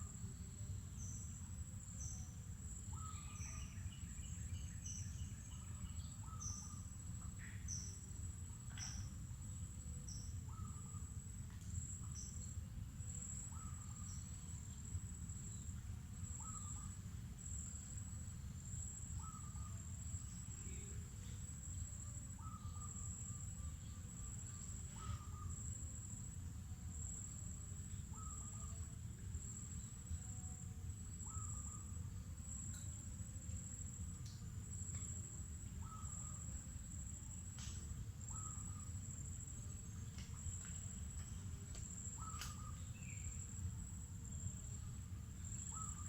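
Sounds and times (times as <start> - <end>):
insects trilling: 0.0 - 46.0
bird calls: 24.5 - 25.6, 35.8 - 36.5, 40.1 - 43.5.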